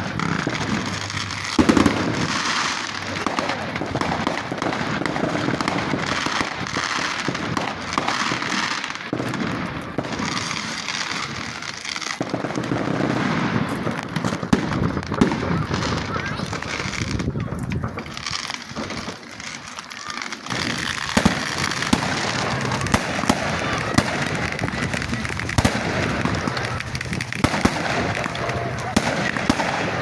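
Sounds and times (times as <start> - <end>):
loud firework bang: 0.0 - 6.2, 20.5 - 30.0
fireworks crackling: 0.0 - 30.0.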